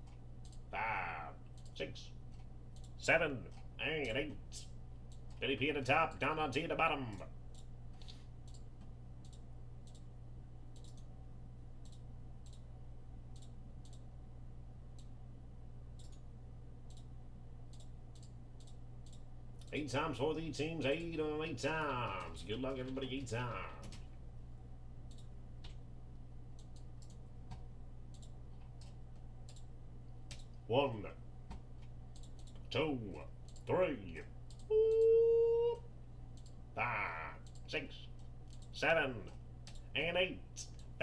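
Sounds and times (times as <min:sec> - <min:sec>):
computer mouse clicking: 0:00.0 - 0:00.6, 0:01.5 - 0:04.2, 0:07.5 - 0:10.1, 0:10.7 - 0:11.1, 0:11.8 - 0:12.7, 0:13.3 - 0:14.1, 0:16.0 - 0:17.1, 0:17.7 - 0:19.7, 0:25.0 - 0:25.8, 0:26.6 - 0:30.6, 0:31.5 - 0:32.7, 0:33.4 - 0:35.0, 0:36.3 - 0:36.6, 0:37.4 - 0:38.7, 0:39.6 - 0:39.9
low electrical hum: 0:00.0 - 0:41.0.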